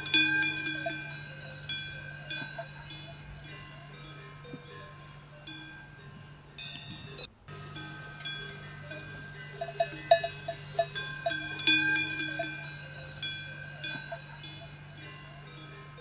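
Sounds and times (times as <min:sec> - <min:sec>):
low hum: 0:00.0 - 0:16.0
metal bells clinking: 0:00.0 - 0:16.0.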